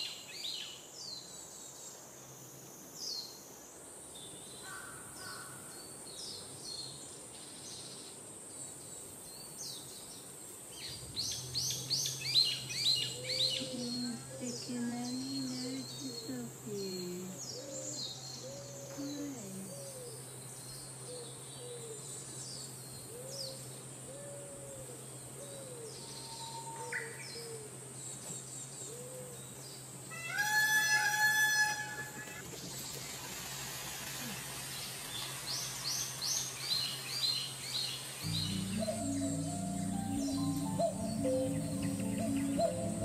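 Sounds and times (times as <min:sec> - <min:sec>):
small birds chirping: 0:10.8 - 0:23.7, 0:34.2 - 0:43.0
low arching bird notes: 0:38.2 - 0:43.0
steady low hum: 0:38.2 - 0:43.0.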